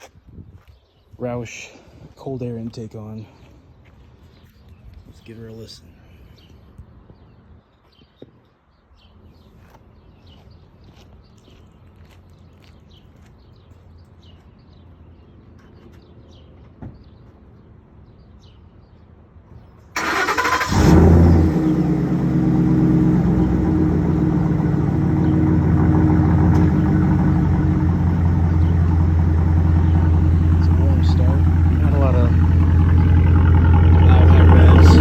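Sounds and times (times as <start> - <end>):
starter motor cranking: 20.0 - 21.1
engine revving and idling: 20.0 - 35.0.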